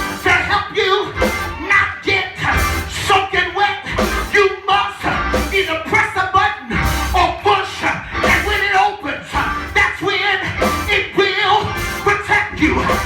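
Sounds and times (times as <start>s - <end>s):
gospel band playing: 0.0s - 13.0s
voices singing: 0.0s - 13.0s.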